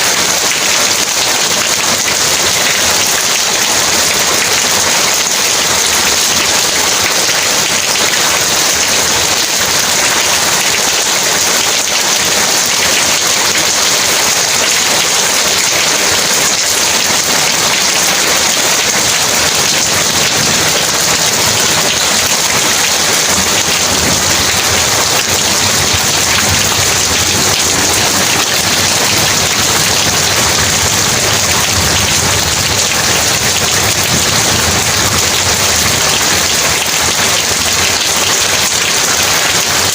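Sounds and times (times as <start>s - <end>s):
heavy rain hissing: 0.1s - 39.9s.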